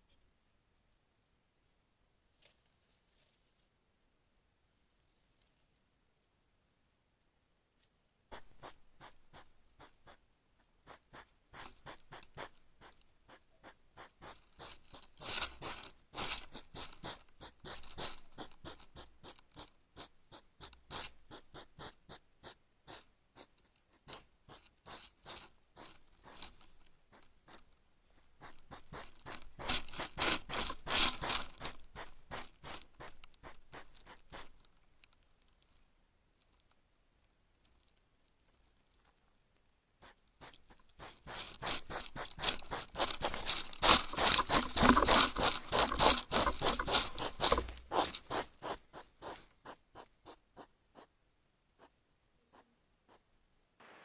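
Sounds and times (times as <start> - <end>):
hedgehog scratching and crunching: 8.3 - 10.2, 10.8 - 34.7, 40.0 - 50.7.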